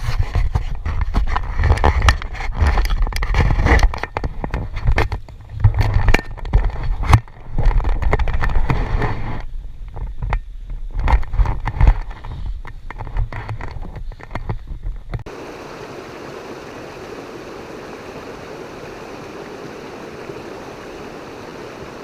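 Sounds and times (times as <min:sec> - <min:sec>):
clicks and scrapes: 0:00.0 - 0:15.3.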